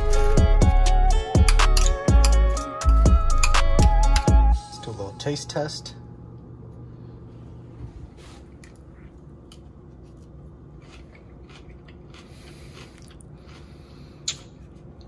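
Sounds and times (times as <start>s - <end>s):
faint chewing with mouth closed: 8.6s - 15.0s.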